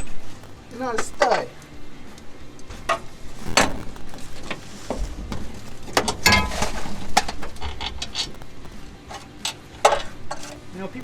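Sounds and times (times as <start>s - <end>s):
metal tools clinking and scraping: 9.1s - 10.7s.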